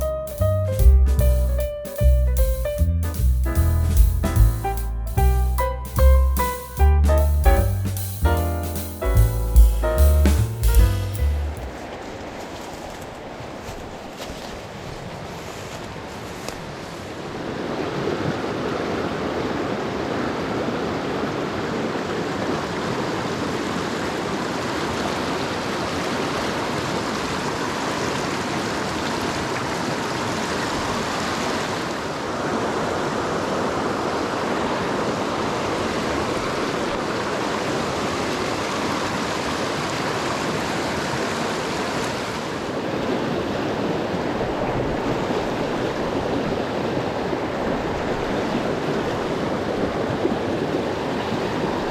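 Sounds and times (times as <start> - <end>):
stream rushing over rocks: 16.6 - 51.9.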